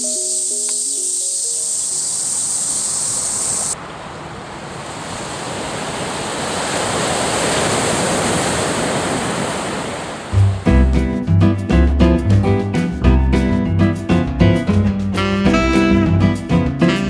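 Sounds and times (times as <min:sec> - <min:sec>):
thin high hiss: 0:00.0 - 0:03.8.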